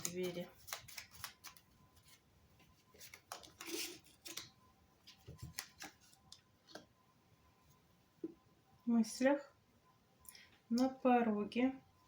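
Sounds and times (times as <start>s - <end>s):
playing cards clicking and snapping: 0.0s - 1.6s
cards sliding rustle: 0.0s - 2.2s, 2.9s - 6.8s.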